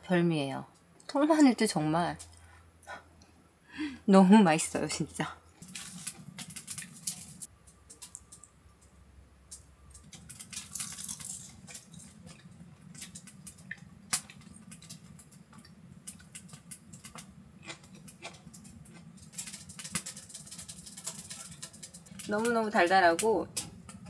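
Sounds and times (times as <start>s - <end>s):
crunchy food being chewed: 9.6s - 22.3s.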